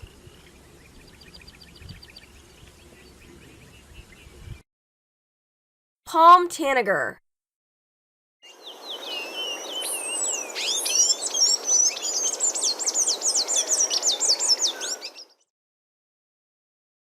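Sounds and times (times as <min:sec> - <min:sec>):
bird twittering song: 0:00.0 - 0:04.6, 0:08.4 - 0:15.5.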